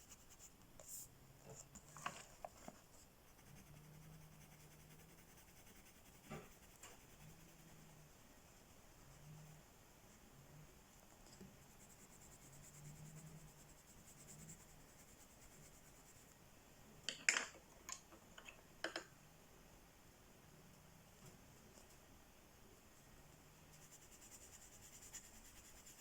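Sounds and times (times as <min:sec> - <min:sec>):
coloring strokes on paper: 0:00.0 - 0:01.1, 0:02.4 - 0:10.2, 0:11.4 - 0:16.4, 0:23.6 - 0:26.0.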